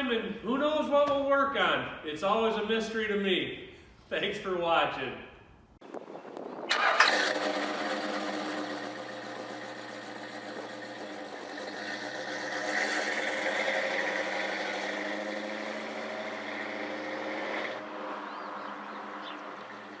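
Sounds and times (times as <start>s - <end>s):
car engine idling: 6.8s - 20.0s.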